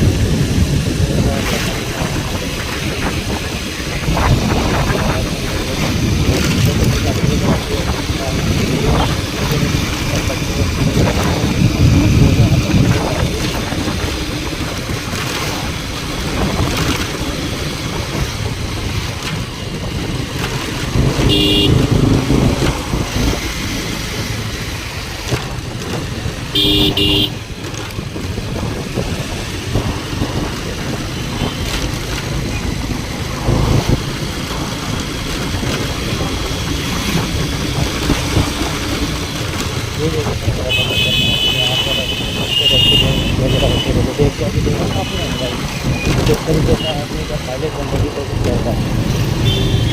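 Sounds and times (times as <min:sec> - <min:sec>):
road traffic: 0:00.0 - 0:49.9
vehicle horn honking: 0:21.2 - 0:22.0, 0:26.5 - 0:27.4, 0:40.7 - 0:44.0, 0:49.4 - 0:49.9.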